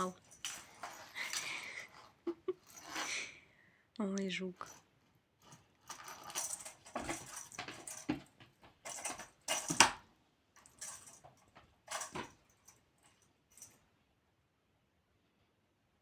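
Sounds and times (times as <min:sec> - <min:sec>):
cat toy clattering and rustling: 0:00.0 - 0:03.3, 0:05.4 - 0:13.8.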